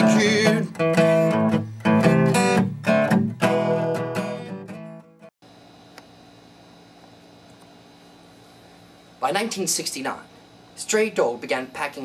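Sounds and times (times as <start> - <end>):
acoustic guitar strumming blues: 0.0 - 5.3
room hum: 5.4 - 12.0.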